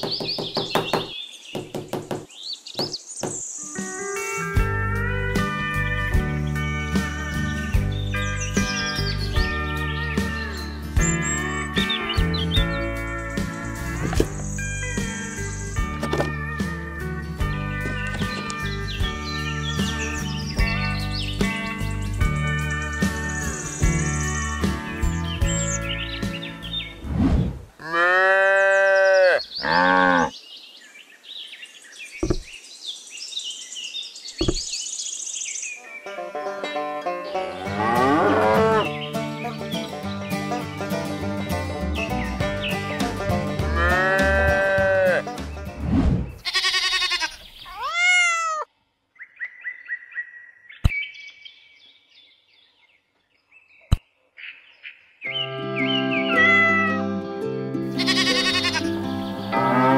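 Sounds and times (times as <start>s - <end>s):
birds chirping faintly: 0.0s - 4.5s, 28.5s - 56.9s
cow mooing: 27.8s - 30.3s, 37.5s - 38.9s, 43.7s - 45.2s, 59.5s - 59.9s
soft thump: 32.2s - 32.5s, 34.4s - 34.6s
goat bleat: 43.7s - 45.3s, 46.4s - 48.7s, 56.3s - 57.0s, 57.9s - 59.0s.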